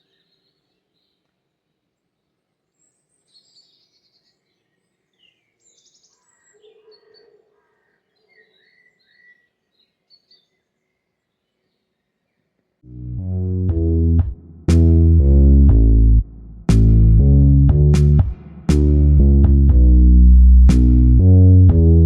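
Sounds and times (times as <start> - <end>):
faint songbirds chirping: 0.0 - 12.8.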